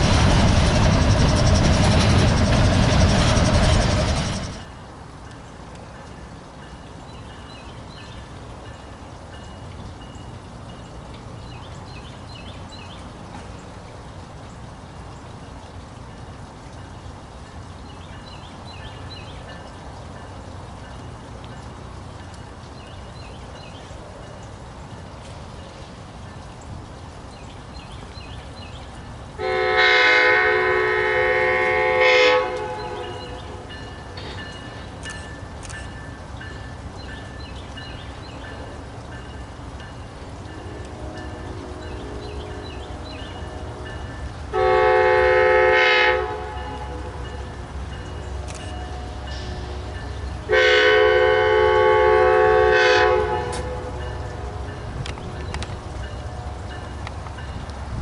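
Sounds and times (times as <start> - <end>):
low rumble of train: 0.0 - 58.0
train horn blast: 29.4 - 33.7, 40.5 - 47.6, 48.3 - 55.1.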